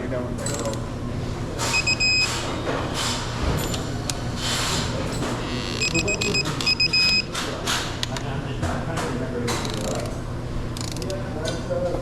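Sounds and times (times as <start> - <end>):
digital torque wrench beeps: 1.7 - 2.3, 5.5 - 7.3
ratchet clicks: 10.8 - 11.2.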